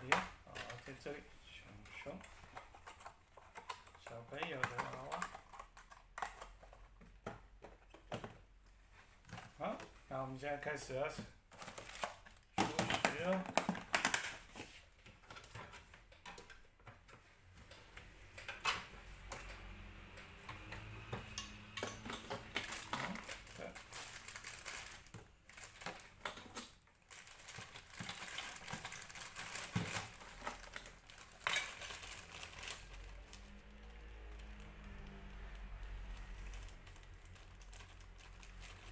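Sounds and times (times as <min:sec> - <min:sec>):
plastic toy pieces clattering: 0:21.8 - 0:33.0.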